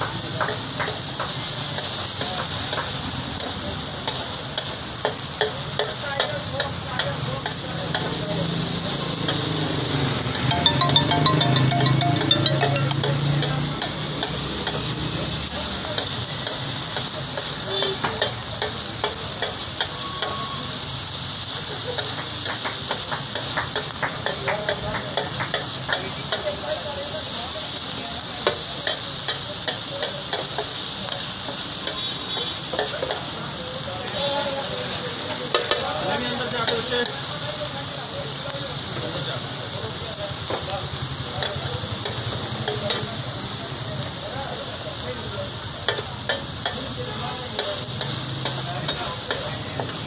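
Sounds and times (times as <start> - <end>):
metal spatula clacking on griddle: 0.0 - 8.2, 15.9 - 20.4, 21.9 - 26.7, 28.4 - 33.4, 35.4 - 37.2, 41.4 - 43.2, 45.8 - 50.0
mince sizzling in oil: 0.0 - 50.0.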